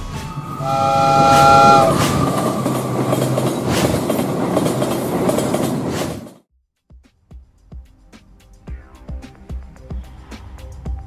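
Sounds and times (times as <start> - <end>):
train rumbling on rails: 0.0 - 6.4.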